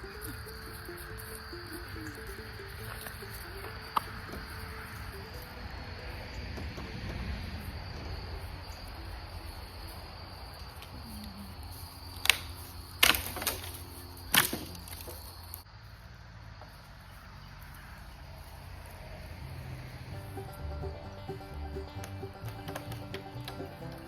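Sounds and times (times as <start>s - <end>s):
insect chirring: 0.0s - 15.7s
branches cracking and falling: 12.1s - 15.6s.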